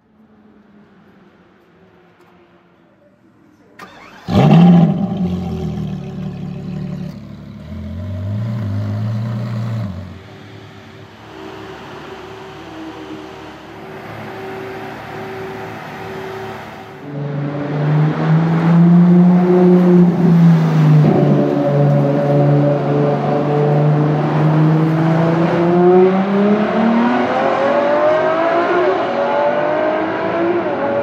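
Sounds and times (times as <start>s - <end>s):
sports car engine revving: 3.8s - 10.4s, 16.6s - 31.0s.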